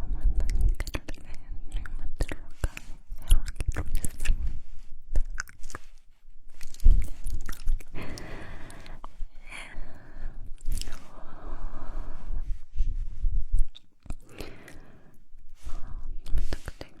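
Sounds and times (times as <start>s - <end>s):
wet mouth clicks and smacks: 0.2s - 4.5s, 5.1s - 8.0s, 10.6s - 11.0s, 13.6s - 14.8s.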